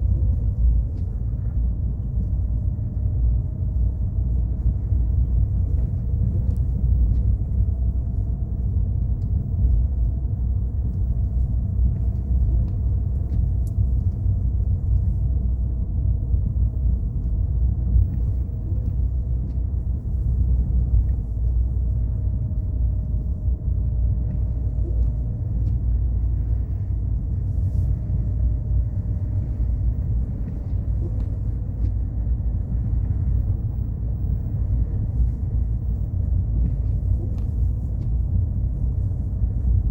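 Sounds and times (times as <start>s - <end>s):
car engine rumble: 0.0s - 39.9s
faint steady hum: 0.0s - 39.9s
light ticks: 4.6s - 15.6s, 24.0s - 39.8s.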